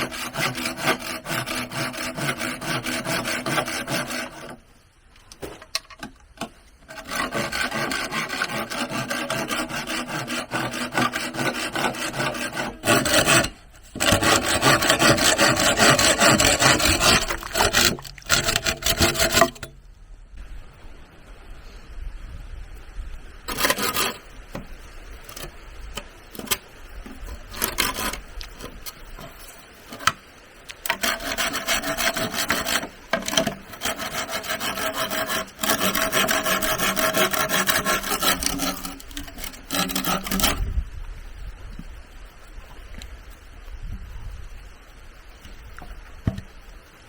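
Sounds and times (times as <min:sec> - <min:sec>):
hand saw cutting bamboo: 0:00.0 - 0:04.6, 0:06.8 - 0:19.7, 0:23.5 - 0:24.7, 0:26.3 - 0:29.0, 0:30.8 - 0:40.6.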